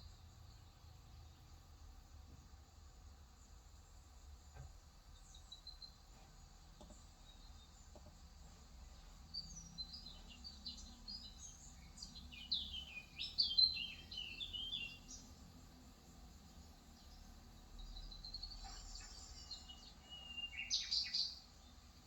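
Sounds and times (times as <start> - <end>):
bird twittering: 9.4 - 15.3, 18.4 - 21.4.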